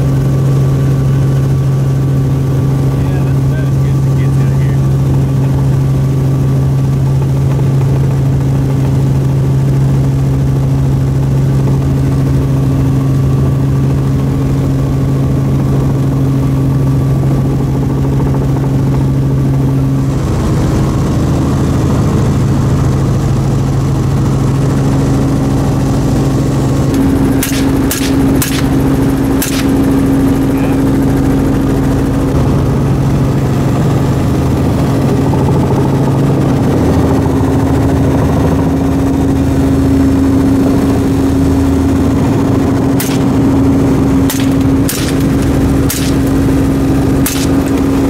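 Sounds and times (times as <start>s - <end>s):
helicopter engine and rotor drone: 0.0s - 48.0s
sharp cracks: 26.9s - 30.4s, 42.9s - 48.0s.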